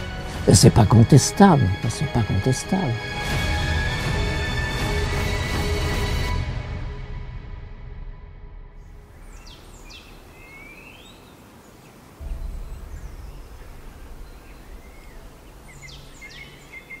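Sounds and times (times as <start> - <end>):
soft outdoor ambience: 8.8 - 17.0
bird chirps: 9.1 - 17.0
deep low boom: 12.2 - 17.0.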